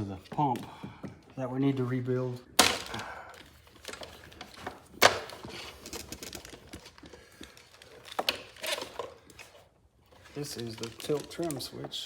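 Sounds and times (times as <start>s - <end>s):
tools clicking and clattering: 2.6s - 9.7s, 10.3s - 12.0s.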